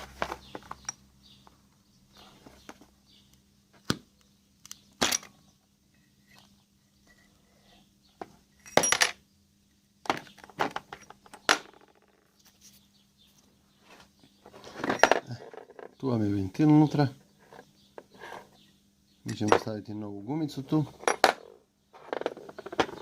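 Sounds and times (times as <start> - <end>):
metal parts and tools clinking: 5.0 - 7.4, 8.5 - 9.2, 10.1 - 12.3, 14.6 - 16.0, 19.3 - 19.8, 21.0 - 23.0.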